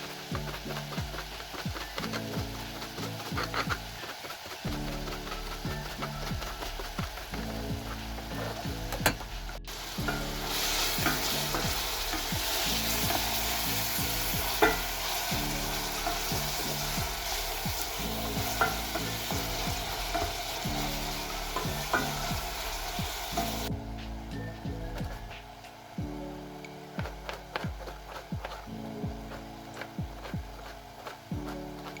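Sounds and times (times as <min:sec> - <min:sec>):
food sizzling in a pan: 0:00.0 - 0:32.0
soft background music: 0:00.0 - 0:32.0.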